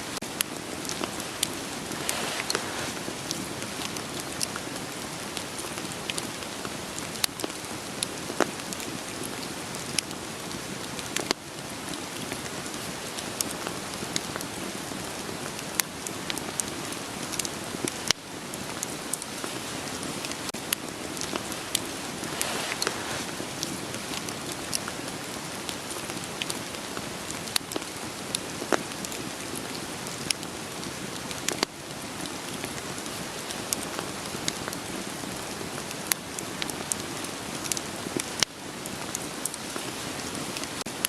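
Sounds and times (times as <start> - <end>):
campfire crackling: 0.0 - 41.0
rain hissing: 0.0 - 41.0.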